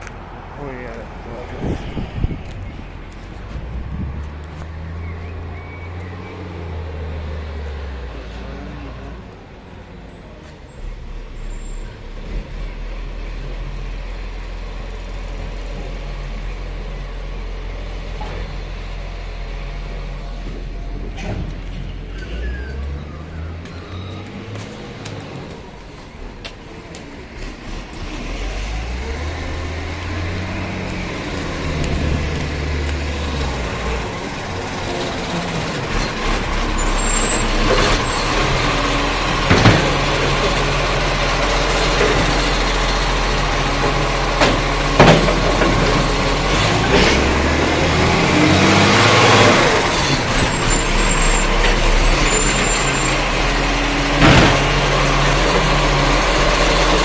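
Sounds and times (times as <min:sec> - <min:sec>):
garbage truck engine running: 0:19.7 - 0:57.0.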